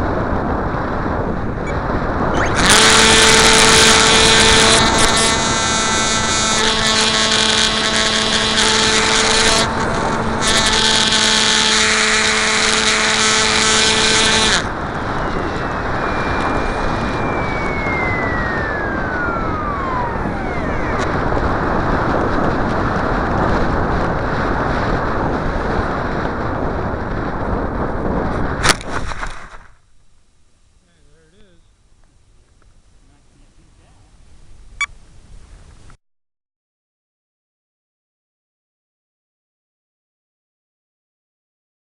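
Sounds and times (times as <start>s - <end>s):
wind rush: 0.0s - 29.8s
falling whistle: 2.4s - 4.5s, 14.8s - 21.1s
electric motor whining: 2.4s - 24.2s.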